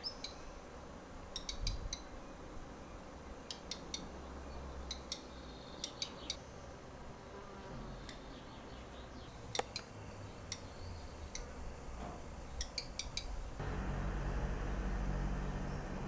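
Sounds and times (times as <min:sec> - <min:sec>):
bird ticking calls: 0:01.4 - 0:02.0, 0:03.5 - 0:04.1, 0:04.9 - 0:06.4, 0:09.5 - 0:11.5, 0:12.6 - 0:13.4
low steady rumble: 0:13.5 - 0:16.0.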